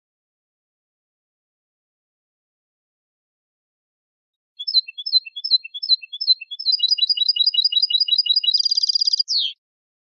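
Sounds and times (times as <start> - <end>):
finch song with trills: 4.6 - 9.6.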